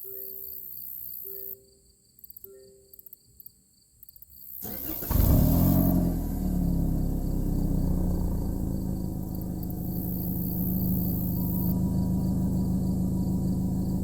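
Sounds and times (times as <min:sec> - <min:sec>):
car engine starting and idling: 0:04.6 - 0:14.0.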